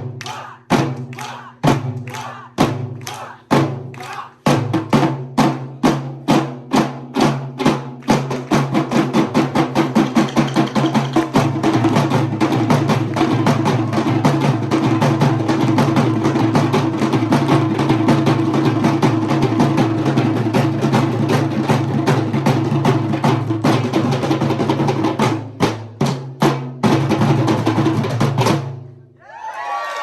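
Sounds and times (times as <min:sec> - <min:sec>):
drum ensemble playing: 0:00.0 - 0:28.9.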